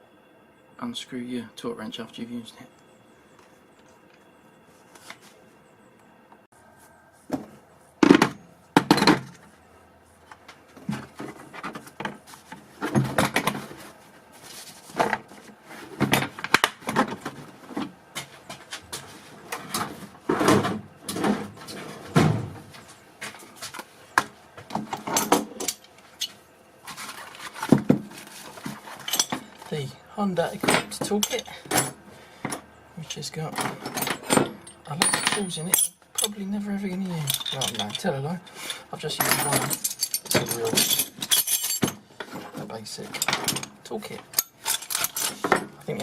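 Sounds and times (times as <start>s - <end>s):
hand tools clinking and rattling: 24.7s - 29.9s, 30.5s - 46.0s.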